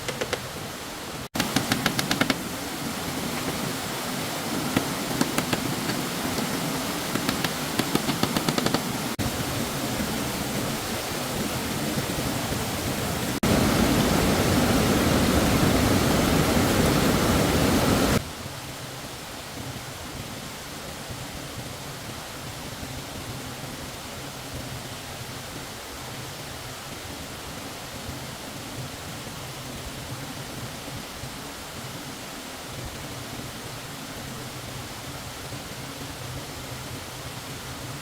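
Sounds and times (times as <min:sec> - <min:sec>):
stream water rushing: 0:00.0 - 0:38.0.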